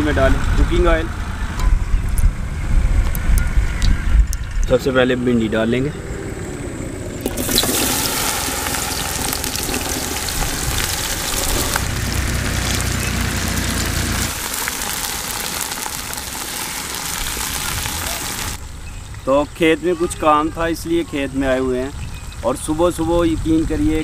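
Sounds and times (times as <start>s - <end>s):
vegetables sizzling in hot oil: 7.2s - 18.6s.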